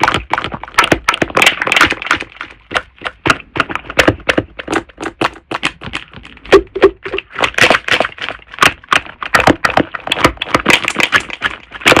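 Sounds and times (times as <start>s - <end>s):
slime squeezed by hand: 3.9s - 12.0s.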